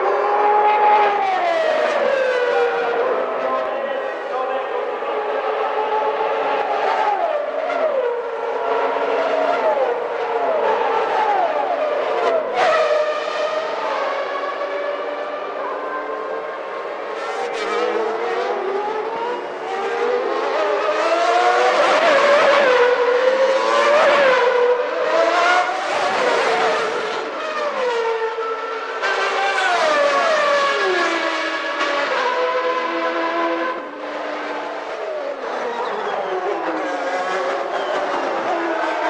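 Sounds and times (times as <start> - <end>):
racing car engines at high revs: 0.0 - 39.0.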